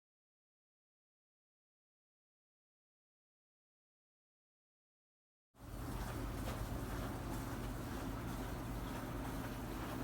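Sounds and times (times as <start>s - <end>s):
low hum with hiss: 5.6s - 10.0s.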